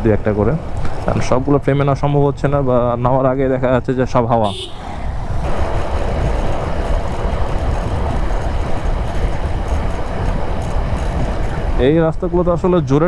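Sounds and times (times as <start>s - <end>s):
motorcycle engine and road rumble: 0.0s - 12.0s
wind on microphone: 4.5s - 12.0s.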